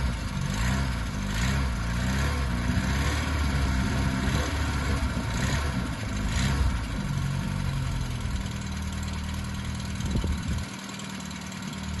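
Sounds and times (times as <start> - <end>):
car engine blipping and idling: 0.0 - 12.0
quiet engine hum: 3.5 - 12.0.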